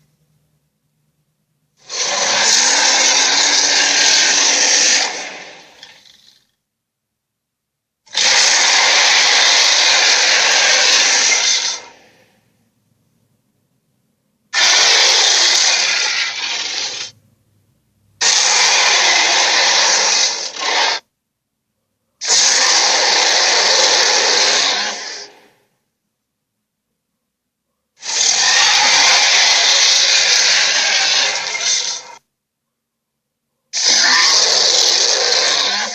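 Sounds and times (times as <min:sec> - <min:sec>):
giant ape roaring: 0:01.8 - 0:06.4, 0:08.1 - 0:12.2, 0:14.6 - 0:17.1, 0:18.2 - 0:21.0, 0:22.2 - 0:25.5, 0:28.0 - 0:32.2, 0:33.8 - 0:35.9.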